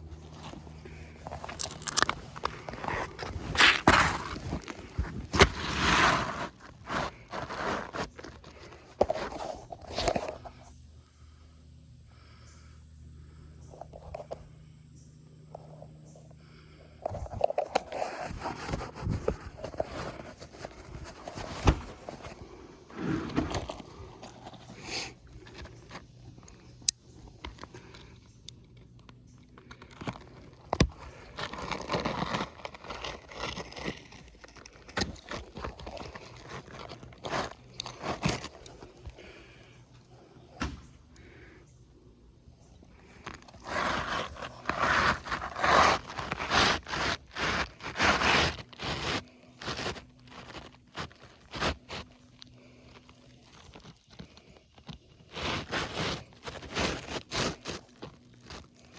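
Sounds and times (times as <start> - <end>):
scraping on roof shingles: 0.0 - 10.4, 17.1 - 26.7, 29.6 - 39.6, 43.0 - 58.9.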